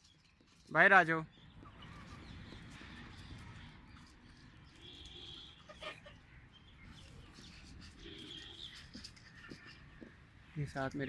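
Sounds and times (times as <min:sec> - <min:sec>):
young chickens peeping: 0:01.4 - 0:10.2.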